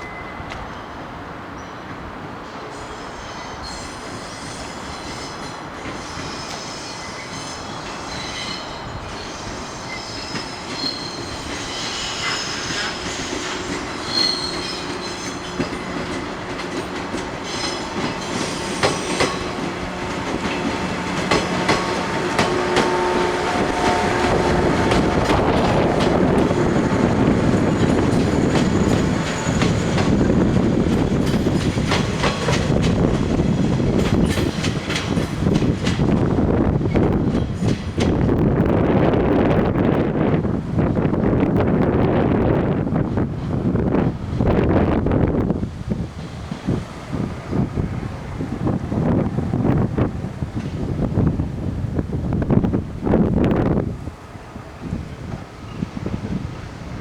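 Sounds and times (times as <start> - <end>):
train wheels squealing: 0.0 - 1.0, 1.6 - 16.2, 16.8 - 19.7, 20.4 - 32.7, 54.6 - 57.0
electric train running on rails: 0.0 - 57.0
wheels clicking over rail joints: 23.8 - 36.2.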